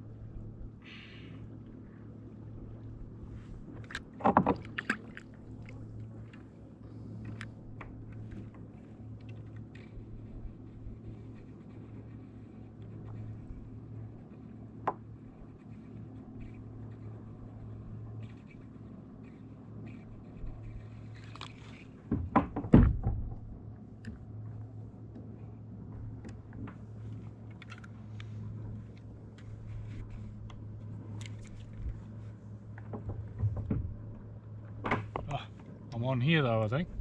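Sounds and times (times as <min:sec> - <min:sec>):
gear knocking against kayak hull: 0:22.0 - 0:23.6, 0:32.8 - 0:35.4.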